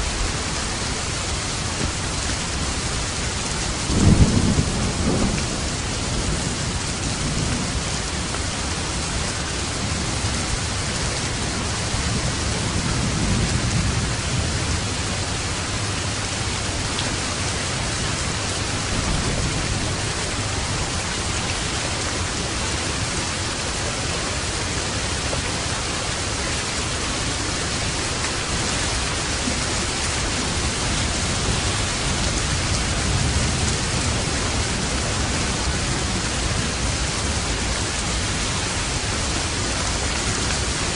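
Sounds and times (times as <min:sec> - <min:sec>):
heavy rain hissing: 0:00.0 - 0:40.9
distant thunder rumbling: 0:03.6 - 0:08.5, 0:17.4 - 0:23.2.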